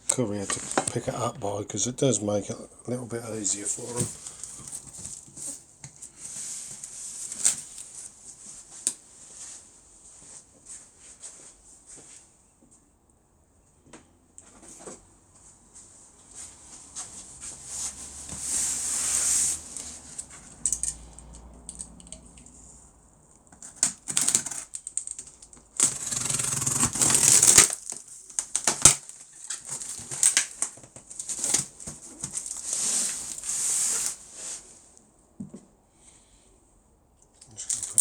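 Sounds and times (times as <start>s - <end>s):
blade cutting cardboard: 23.6s - 24.7s, 25.8s - 27.9s.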